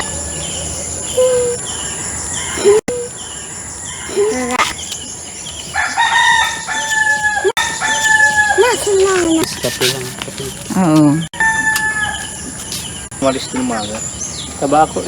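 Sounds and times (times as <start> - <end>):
high insect buzz: 0.0 - 10.0
rooster crowing: 5.7 - 10.1, 11.3 - 12.6
fowl clucking: 5.7 - 10.5.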